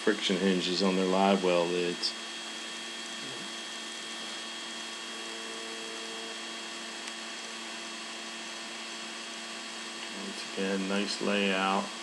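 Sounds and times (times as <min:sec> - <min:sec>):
electrical hum with hiss: 0:00.0 - 0:12.0.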